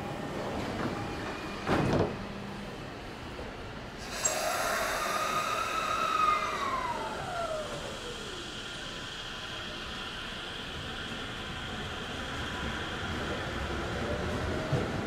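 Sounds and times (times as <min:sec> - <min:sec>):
train equipment hum: 0:00.0 - 0:15.0
whine sliding in pitch: 0:04.2 - 0:11.8.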